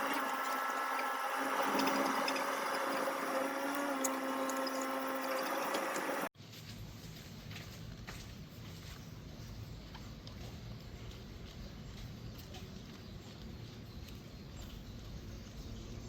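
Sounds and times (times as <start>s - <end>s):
small electric motor whining: 0.0s - 6.3s.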